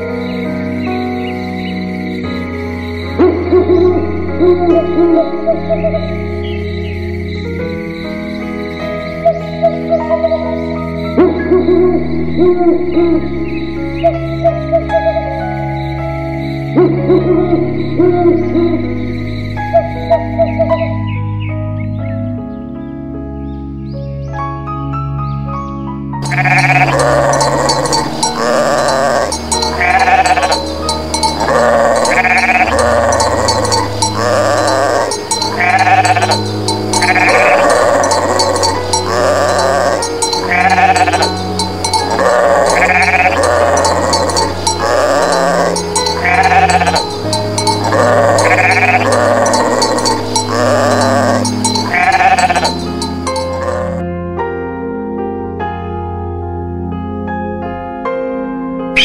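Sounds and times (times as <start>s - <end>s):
background music low notes: 0.0s - 59.0s
sheep bleating: 26.2s - 54.0s.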